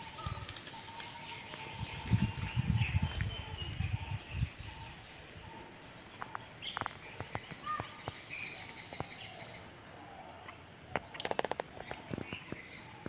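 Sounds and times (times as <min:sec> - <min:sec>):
faint bird chirps: 0:00.0 - 0:13.0
high background hiss: 0:03.5 - 0:13.0.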